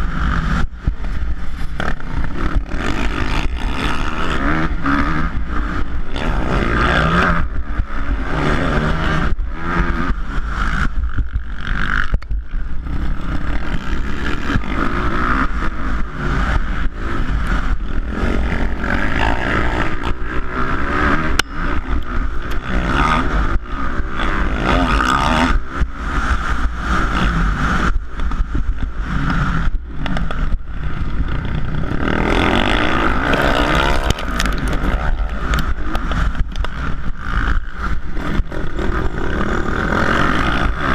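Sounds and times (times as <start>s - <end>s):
motorcycle engines revving: 0.0s - 40.9s.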